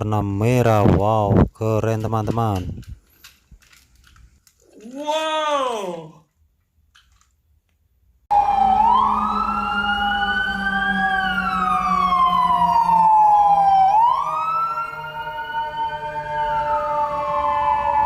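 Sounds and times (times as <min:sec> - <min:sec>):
steady electronic tone: 0:08.3 - 0:17.1
toy siren wailing: 0:08.3 - 0:18.0.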